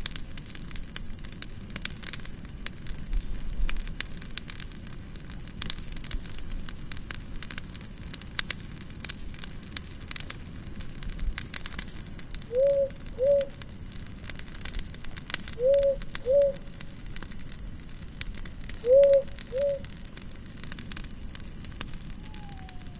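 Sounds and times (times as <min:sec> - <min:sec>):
campfire crackling: 0:00.0 - 0:22.9
cricket chirping: 0:03.2 - 0:03.6, 0:06.1 - 0:08.5, 0:12.5 - 0:13.8, 0:15.5 - 0:16.8, 0:18.8 - 0:19.8
low two-note hoot: 0:12.5 - 0:13.6, 0:15.6 - 0:16.6, 0:18.8 - 0:19.9.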